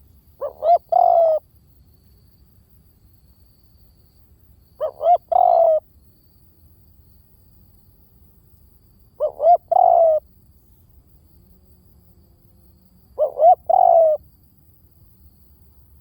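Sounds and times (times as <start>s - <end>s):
dove cooing: 0.0s - 1.4s, 4.8s - 5.9s, 9.2s - 10.2s, 13.2s - 14.2s.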